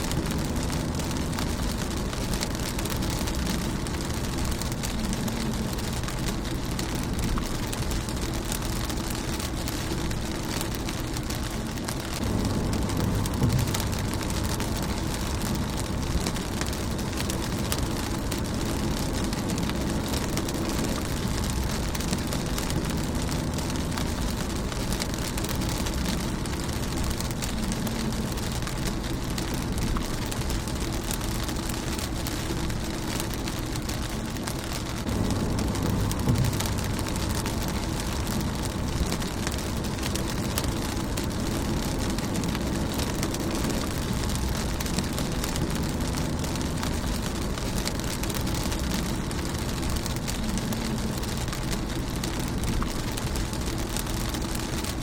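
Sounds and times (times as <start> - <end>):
low rumble: 0.0 - 55.0
rain on car windshield: 0.0 - 55.0.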